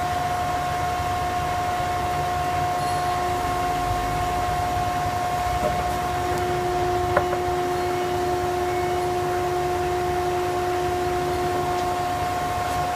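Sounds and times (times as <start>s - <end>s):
thickness planer running: 0.5s - 12.9s.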